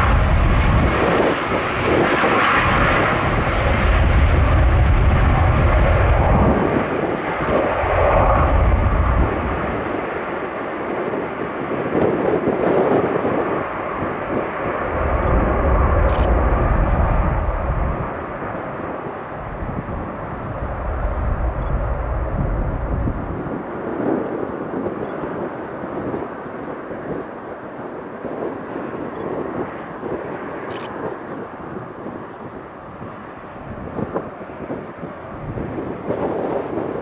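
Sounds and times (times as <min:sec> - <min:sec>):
airliner engine rushing: 0:00.0 - 0:37.0
wind buffeting microphone: 0:00.0 - 0:37.0.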